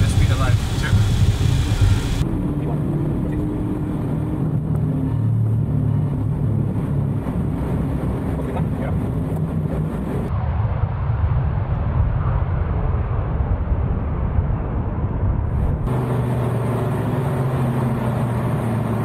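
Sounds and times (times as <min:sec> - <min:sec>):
steady engine hum: 0:00.0 - 0:10.3, 0:12.8 - 0:19.0
jet engines running: 0:00.0 - 0:19.0.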